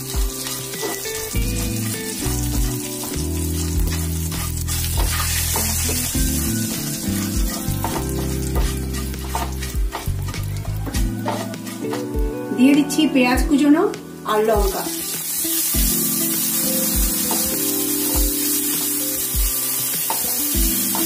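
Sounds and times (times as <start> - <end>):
spice paste sizzling in ghee: 0.0 - 12.1, 13.6 - 21.0
utensil clicking against pan: 7.0 - 12.1.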